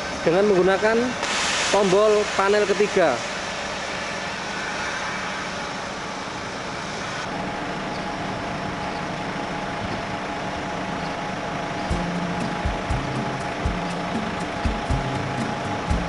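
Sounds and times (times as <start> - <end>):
truck engine running: 3.2 - 16.0.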